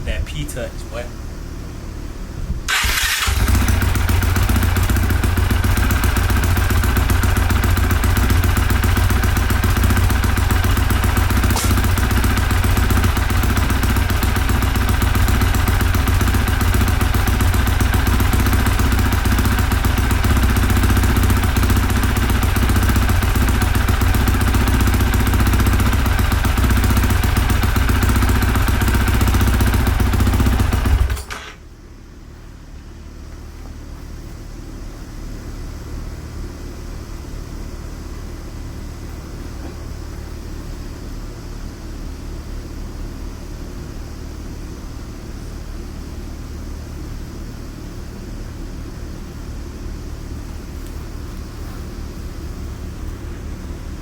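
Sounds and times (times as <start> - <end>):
motorcycle engine starting and running: 2.5 - 31.7.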